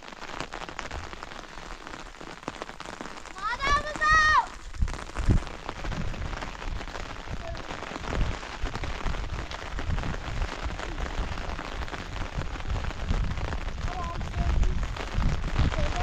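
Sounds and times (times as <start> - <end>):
rain falling: 0.0 - 16.0
wind buffeting microphone: 3.2 - 16.0.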